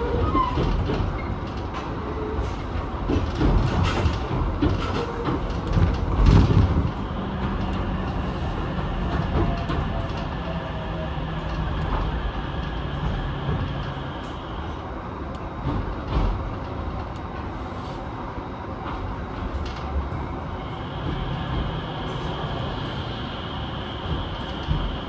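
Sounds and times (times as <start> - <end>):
train wheels clacking over joints: 0.0 - 14.4, 15.4 - 17.5, 24.0 - 25.0.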